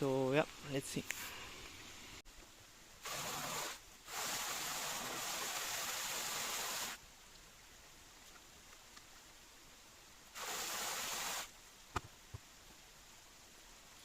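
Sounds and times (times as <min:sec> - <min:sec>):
rushing hissing water: 0:02.8 - 0:07.0, 0:09.5 - 0:11.9.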